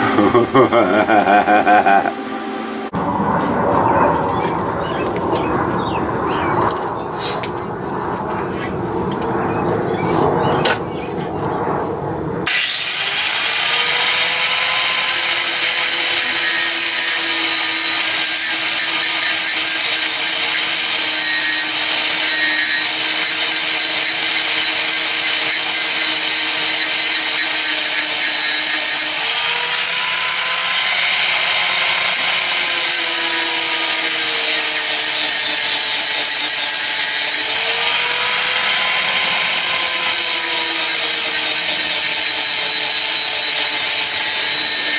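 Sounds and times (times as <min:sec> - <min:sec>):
angle grinder grinding metal: 0:00.0 - 0:03.0, 0:12.5 - 0:44.9.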